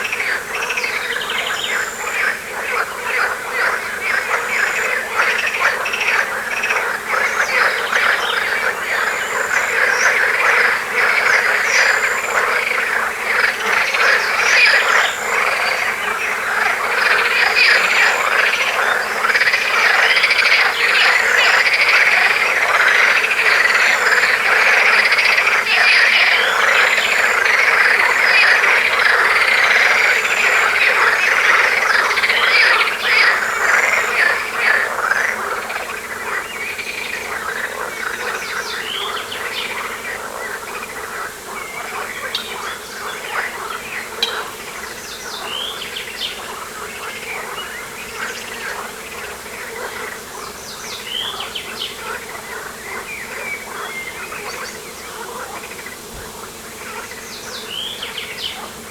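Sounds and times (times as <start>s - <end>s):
frogs calling: 0.0s - 58.9s
insects calling: 0.0s - 58.9s.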